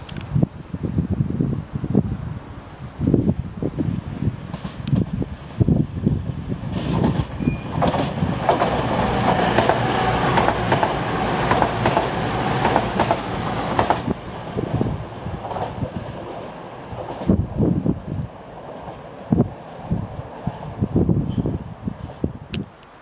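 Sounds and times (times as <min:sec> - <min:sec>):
wind rumble on microphone: 0:00.0 - 0:23.0
train passing: 0:01.2 - 0:22.5
wheels clicking over rail joints: 0:06.7 - 0:17.4.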